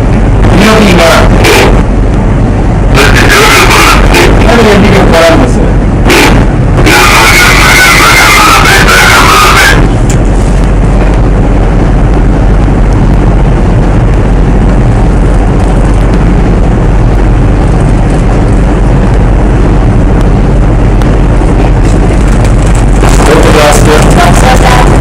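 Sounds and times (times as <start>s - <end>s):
wind buffeting the microphone: 0.0s - 3.1s, 9.8s - 25.0s.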